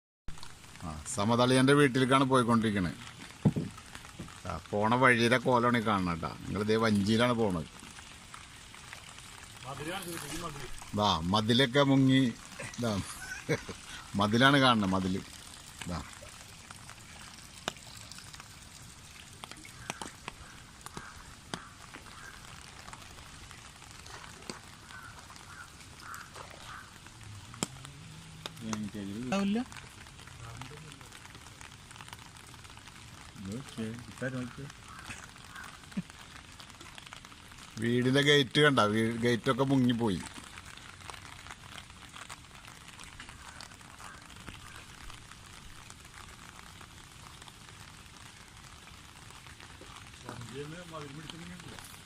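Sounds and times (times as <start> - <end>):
water gurgling around boat: 2.5 - 34.1
sharp knocks: 3.4 - 3.8.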